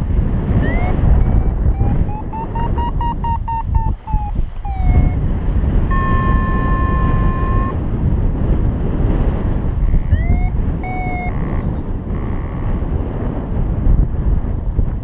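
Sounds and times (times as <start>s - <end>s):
wind buffeting microphone: 0.0s - 15.0s
variometer electronic beeps: 0.5s - 7.8s, 9.8s - 12.4s.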